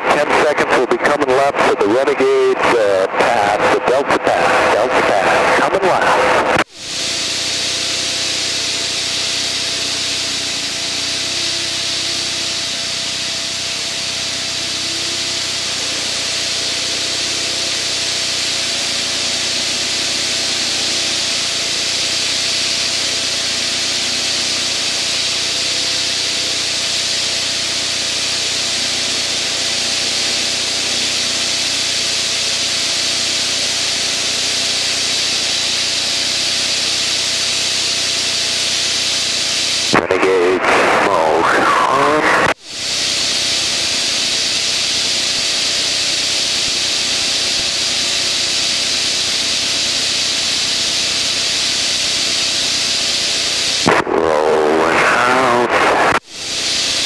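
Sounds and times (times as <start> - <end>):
propeller aircraft engine drone: 0.0 - 57.0
hiss of rushing air: 42.7 - 53.9, 55.1 - 57.0.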